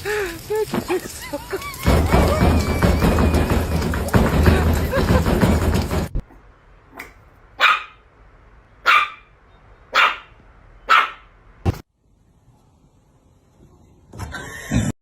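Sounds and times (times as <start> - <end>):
dog barking: 7.0 - 8.0, 8.8 - 9.3, 9.9 - 11.3.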